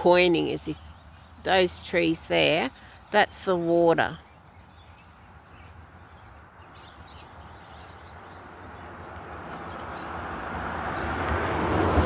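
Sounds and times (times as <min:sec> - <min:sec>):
vehicle road noise: 0:00.0 - 0:12.0
faint bird chirps: 0:04.2 - 0:09.6.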